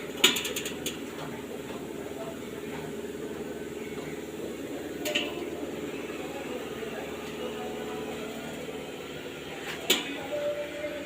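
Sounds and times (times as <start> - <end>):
blower fan humming: 0.0 - 11.0.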